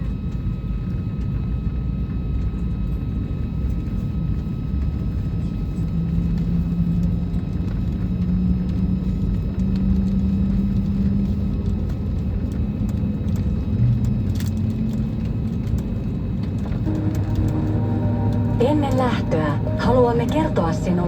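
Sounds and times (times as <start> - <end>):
aircraft cabin rumble: 3.8 - 21.0
low hum rising in pitch: 16.5 - 21.0.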